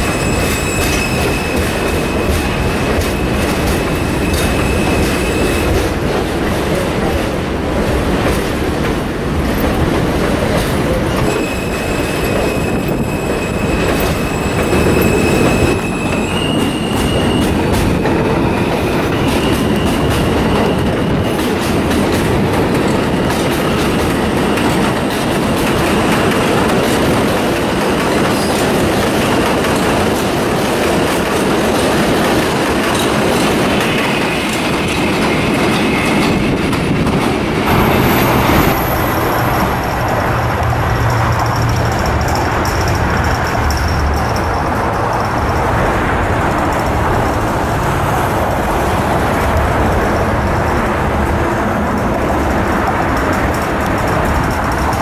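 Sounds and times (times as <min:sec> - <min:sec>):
wheel squeal: 0:00.0 - 0:05.8, 0:11.2 - 0:21.6
train rolling on rails: 0:00.0 - 0:55.0.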